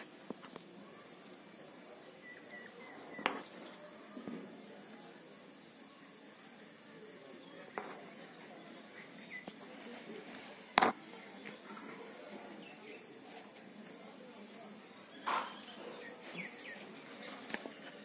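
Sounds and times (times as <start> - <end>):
faint high bird chirps: 2.2 - 4.0.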